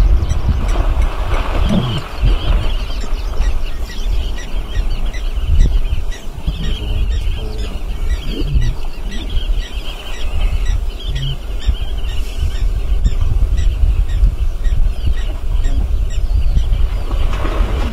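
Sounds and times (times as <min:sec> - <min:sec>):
low rumble: 0:00.0 - 0:17.9
squawking bird calls: 0:00.3 - 0:16.4.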